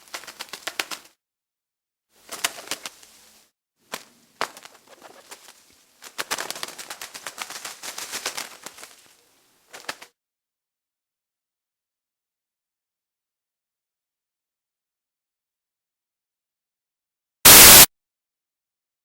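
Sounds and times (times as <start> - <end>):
bird rapid clicking: 0.0 - 1.2, 4.0 - 9.0.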